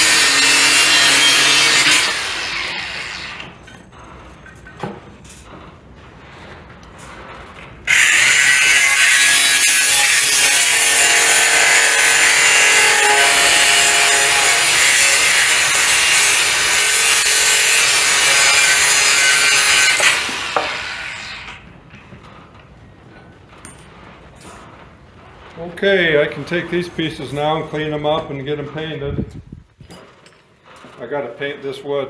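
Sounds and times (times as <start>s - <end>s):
angle grinder cutting bolt: 0.0s - 3.6s, 7.9s - 21.6s.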